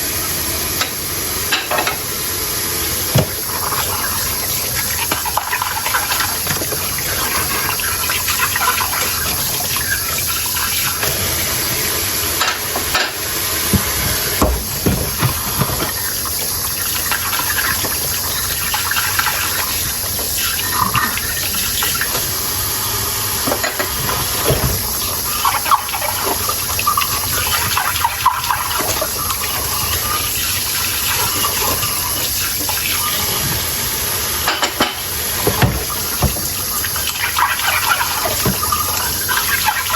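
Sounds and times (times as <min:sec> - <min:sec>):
tap water running into sink: 0:00.0 - 0:39.9
dishes clinking: 0:01.5 - 0:02.0, 0:34.5 - 0:36.4.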